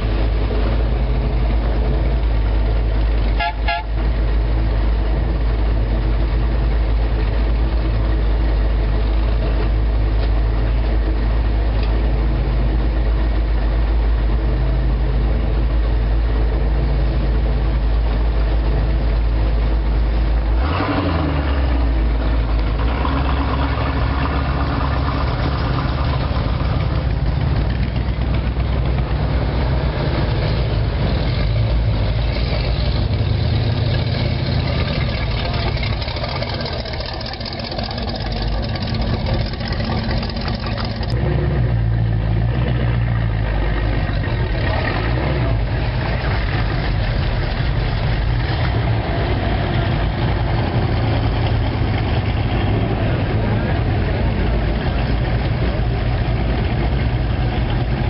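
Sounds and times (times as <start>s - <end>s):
car engines rumbling: 0.0s - 58.0s
car horn toot: 3.4s - 4.0s
car engine passing: 20.6s - 58.0s.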